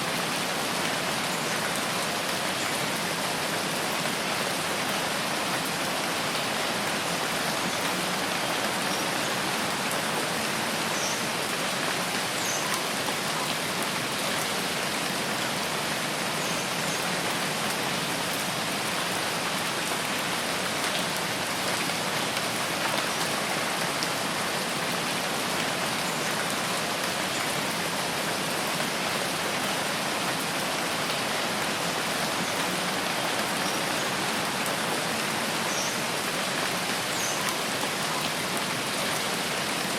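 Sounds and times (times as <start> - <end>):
heavy rain falling on forest: 0.0 - 39.9.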